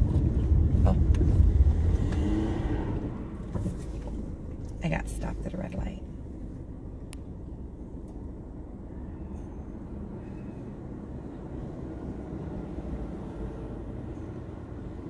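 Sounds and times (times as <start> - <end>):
car engine idling: 3.0 - 10.0.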